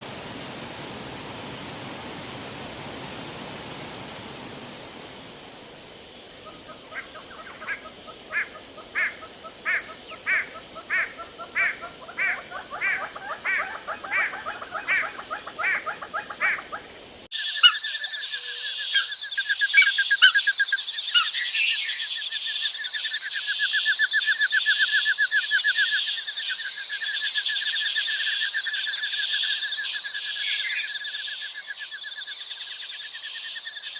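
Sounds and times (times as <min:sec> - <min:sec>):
insect trill: 0:00.0 - 0:33.9
repeated frog call: 0:02.4 - 0:21.3.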